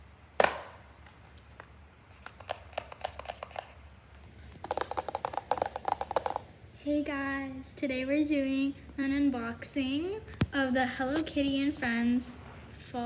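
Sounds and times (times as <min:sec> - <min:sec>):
hands tapping packaging boxes: 0:01.6 - 0:03.7, 0:04.6 - 0:06.5.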